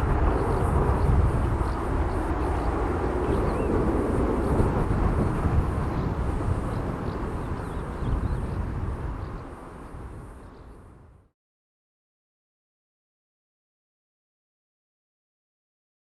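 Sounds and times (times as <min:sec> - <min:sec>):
jet engines rumbling: 0:00.0 - 0:11.2.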